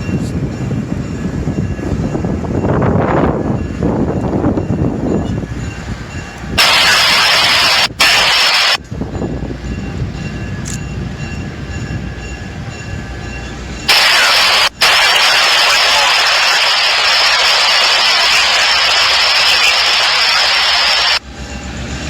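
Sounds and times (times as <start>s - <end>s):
diesel train rumbling past: 0.0s - 7.0s, 8.8s - 13.9s, 21.2s - 22.0s
loud rushing hiss: 6.6s - 8.8s, 13.9s - 21.2s.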